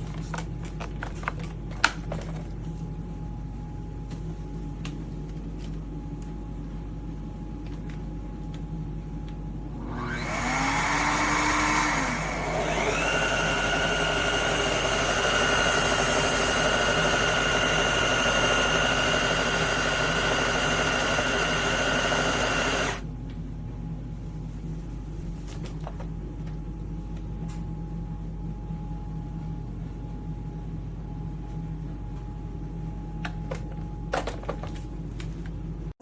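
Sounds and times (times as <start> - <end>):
vacuum mop motor whining: 9.8 - 23.0.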